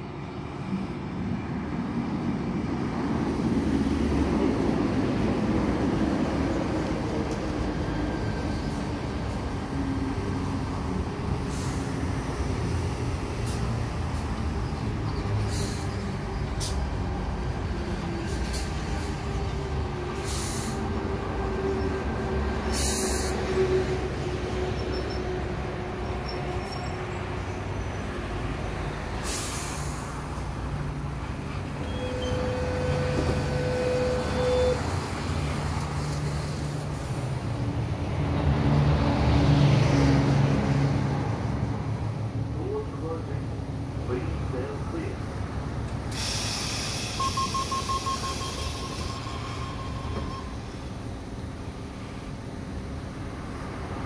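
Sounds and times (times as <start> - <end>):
electric train arriving: 0.3 - 38.3, 45.8 - 54.0
air brake hisses: 11.5 - 12.0, 15.4 - 16.8, 20.2 - 20.8, 22.7 - 23.5, 29.2 - 30.4, 46.1 - 50.6.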